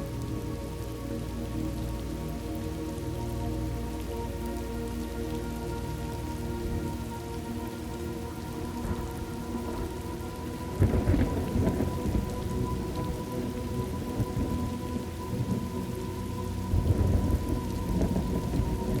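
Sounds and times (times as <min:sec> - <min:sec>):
steady rain: 0:00.0 - 0:19.0
rolling thunder: 0:10.8 - 0:13.2, 0:16.7 - 0:19.0.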